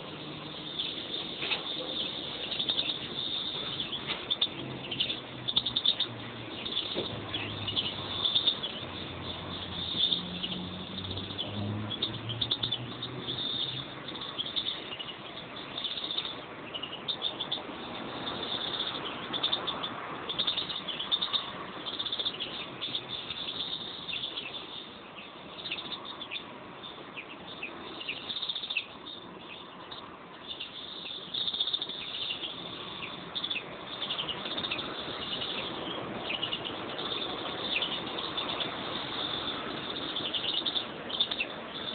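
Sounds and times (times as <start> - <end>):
finches chirping and twittering: 0.0 - 41.9.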